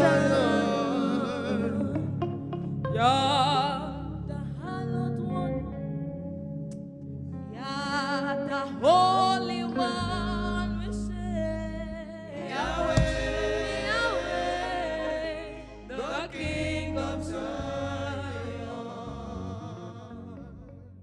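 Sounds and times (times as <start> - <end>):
voices singing gospel: 0.0 - 3.8, 12.3 - 20.8
sustained keyboard and bass: 0.0 - 21.0.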